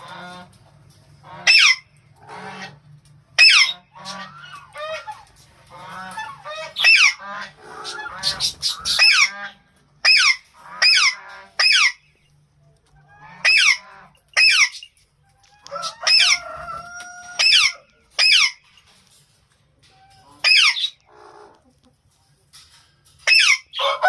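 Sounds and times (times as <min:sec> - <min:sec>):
parakeets screeching: 0:01.4 - 0:02.8, 0:03.4 - 0:12.0, 0:13.2 - 0:15.0, 0:15.6 - 0:18.6, 0:20.2 - 0:21.5, 0:23.2 - 0:24.0.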